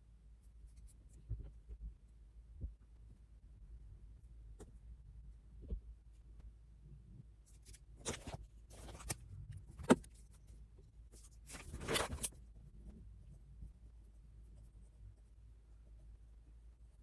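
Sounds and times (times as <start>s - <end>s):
faint low room hum: 0.0s - 17.0s
handling rustles: 8.0s - 9.2s, 11.3s - 12.4s.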